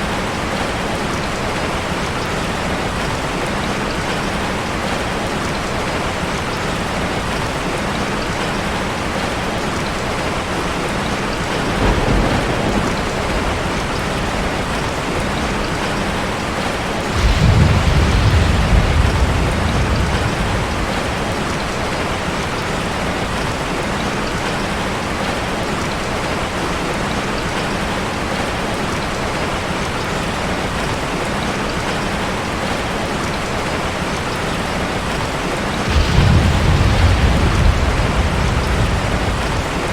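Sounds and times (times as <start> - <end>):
heavy rain drumming on car: 0.0 - 39.9
thunder rumbling: 11.1 - 23.6, 35.0 - 39.9.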